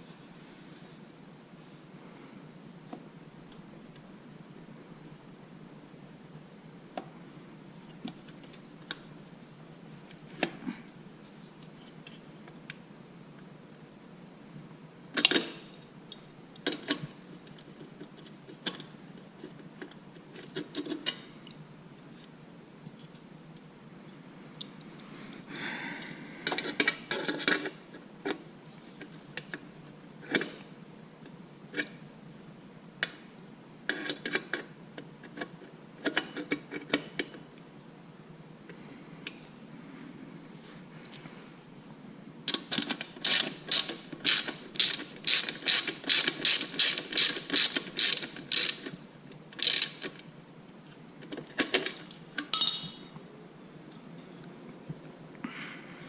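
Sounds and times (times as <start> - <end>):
metallic clinks of hand tools: 52.5 - 53.2.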